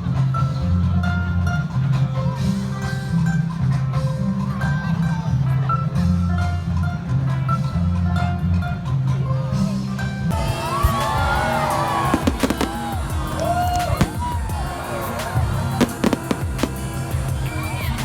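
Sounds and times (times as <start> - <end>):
crowd outdoors: 0.0 - 18.0
music with steady bass line: 0.0 - 18.0
fireworks bangs: 10.4 - 17.4.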